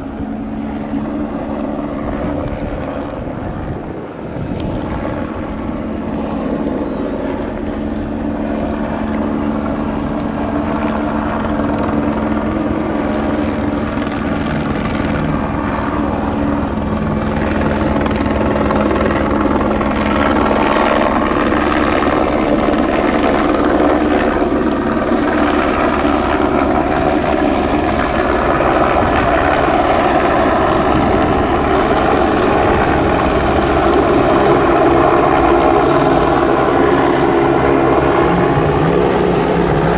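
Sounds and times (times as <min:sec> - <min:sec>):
vehicle engine drone: 0:25.7 - 0:39.9.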